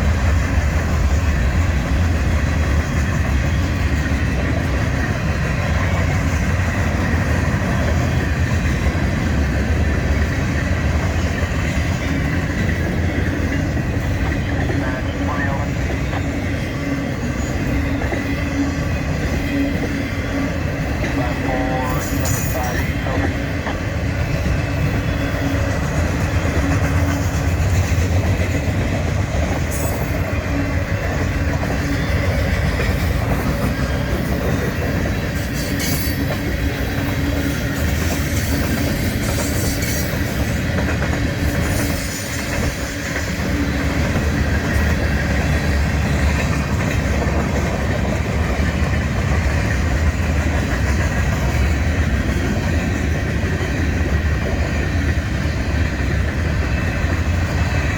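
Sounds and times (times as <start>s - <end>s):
train wheels clacking over rail joints: 15.8s - 57.9s.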